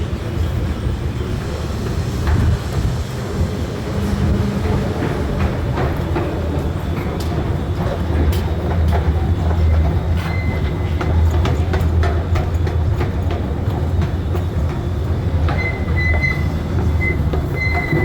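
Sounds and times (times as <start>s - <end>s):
train rumbling on rails: 0.0s - 18.0s
wheels clicking over track: 1.8s - 18.0s
high wheel squeal: 10.0s - 11.2s, 14.9s - 18.0s.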